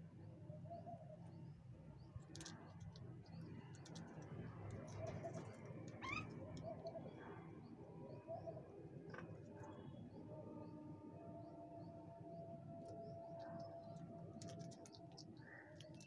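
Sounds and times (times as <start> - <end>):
low steady hum: 0.0 - 16.0
faint bird calls: 4.9 - 7.4.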